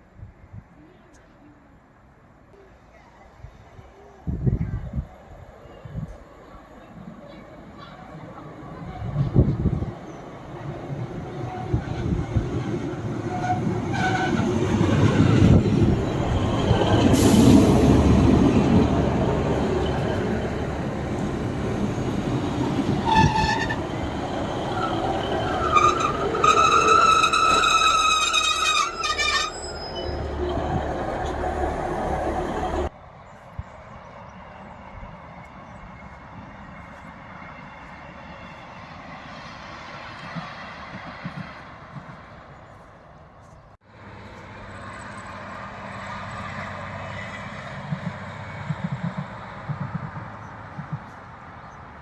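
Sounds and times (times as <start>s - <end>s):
diesel train rumbling past: 2.9s - 42.8s, 43.8s - 52.0s
train horn: 13.2s - 15.6s, 23.0s - 24.0s.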